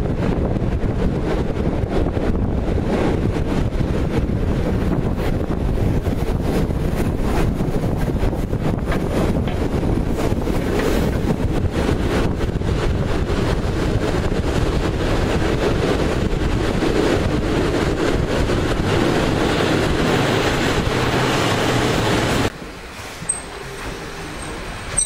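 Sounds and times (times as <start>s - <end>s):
passenger train running: 0.0s - 25.0s
wind buffeting microphone: 0.0s - 25.0s.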